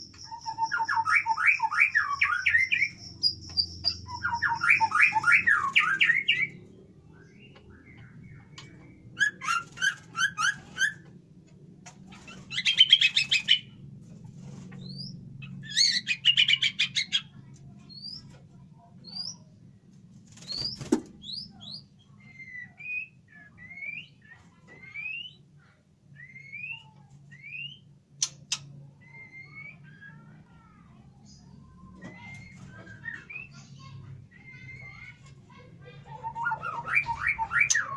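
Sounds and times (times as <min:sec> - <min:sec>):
bird rapid chattering notes: 0:00.0 - 0:11.1, 0:14.7 - 0:18.4, 0:20.3 - 0:22.7, 0:32.2 - 0:37.9
steady low hum: 0:00.0 - 0:37.9
sharp click: 0:28.2 - 0:28.7.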